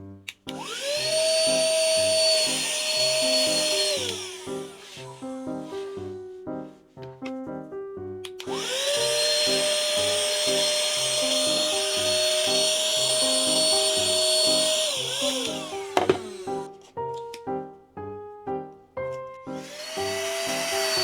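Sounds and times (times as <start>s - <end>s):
vacuum cleaner motor whine: 0.5s - 6.1s, 8.4s - 16.7s, 19.5s - 21.0s.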